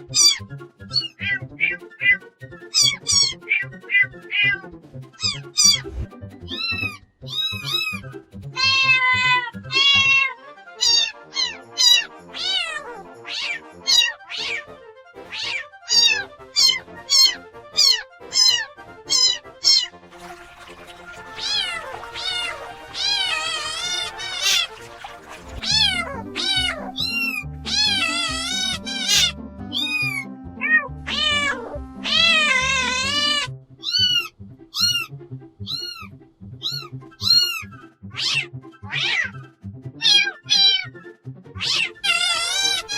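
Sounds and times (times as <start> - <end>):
kittens meowing: 0.0 - 8.0, 8.6 - 14.7, 15.3 - 19.9, 21.3 - 24.8, 25.6 - 39.4, 41.6 - 42.9
background music with low beat: 4.8 - 10.2, 24.6 - 38.6.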